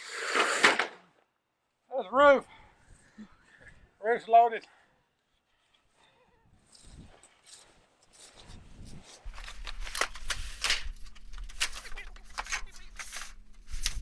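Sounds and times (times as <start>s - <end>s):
sheet metal clicking and rattling: 9.2s - 14.0s.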